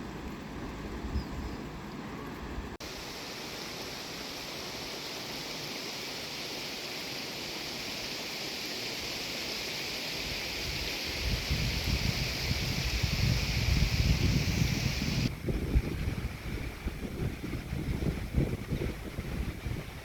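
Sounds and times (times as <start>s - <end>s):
wind buffeting microphone: 10.6s - 20.0s.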